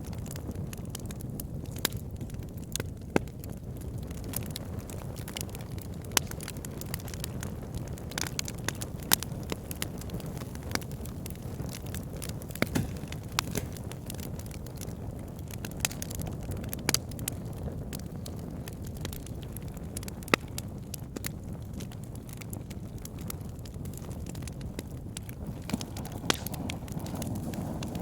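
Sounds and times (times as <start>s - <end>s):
fire flames rumbling: 0.0s - 28.0s
logs popping and crackling: 0.0s - 28.0s.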